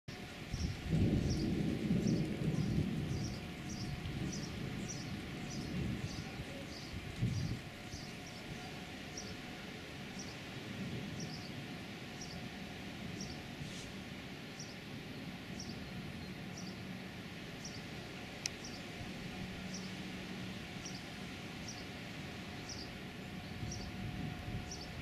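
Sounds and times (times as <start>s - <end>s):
low outdoor rumble: 0.1s - 25.0s
bird chirping: 18.5s - 18.9s, 22.6s - 24.0s, 24.6s - 25.0s.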